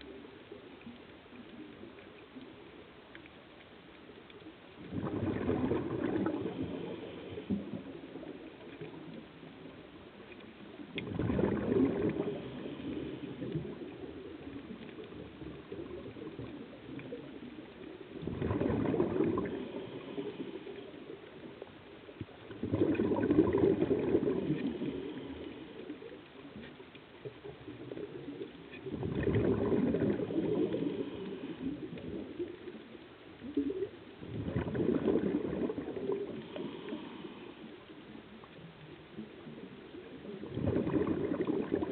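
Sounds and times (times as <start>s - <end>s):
air bubbling underwater: 4.8s - 8.3s, 11.0s - 14.0s, 18.2s - 20.1s, 22.5s - 25.3s, 28.8s - 31.2s, 33.7s - 36.6s, 40.4s - 41.9s
underwater hiss: 4.8s - 26.5s, 27.5s - 41.9s.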